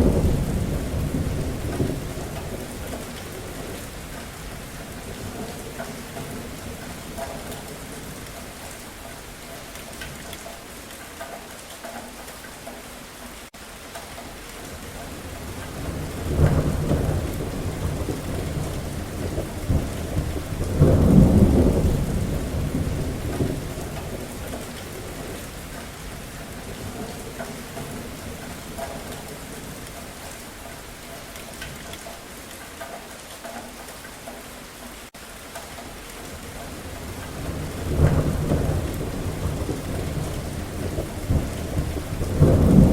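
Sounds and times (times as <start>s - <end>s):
thunder rumbling: 0.0s - 8.7s, 14.7s - 30.0s, 36.3s - 42.9s
steady rain falling: 0.0s - 42.9s.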